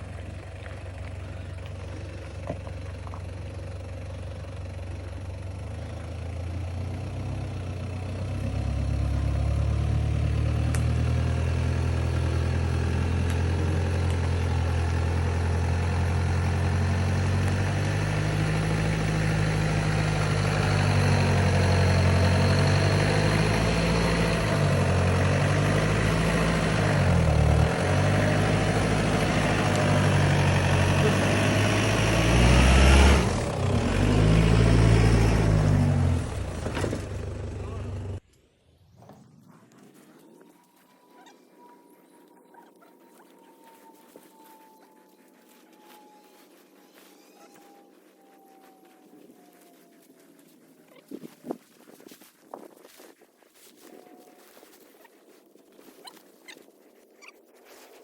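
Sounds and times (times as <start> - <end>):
vehicle engine running: 0.0 - 38.2.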